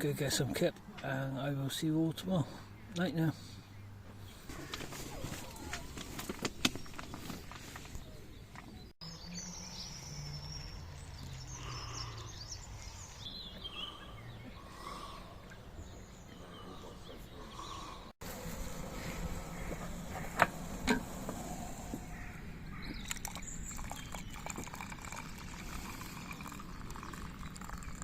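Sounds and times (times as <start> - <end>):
birds chirping and calling: 6.7 - 28.0.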